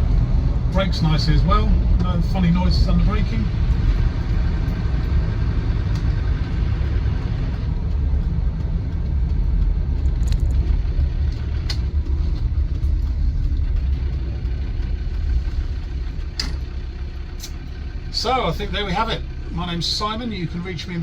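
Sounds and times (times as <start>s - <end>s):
diesel engine running: 0.0s - 21.0s
road and tyre noise: 0.0s - 21.0s.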